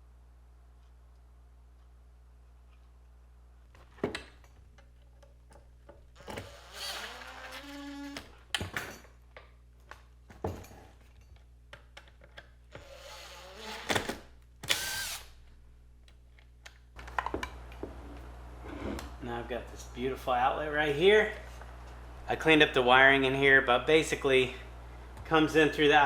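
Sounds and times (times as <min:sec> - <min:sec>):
power drill running: 0:06.2 - 0:08.3, 0:12.8 - 0:15.4.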